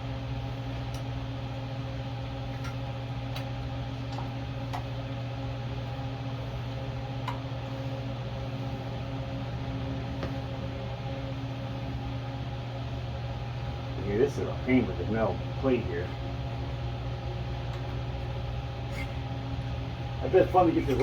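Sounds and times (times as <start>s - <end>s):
fan humming: 0.0s - 21.0s.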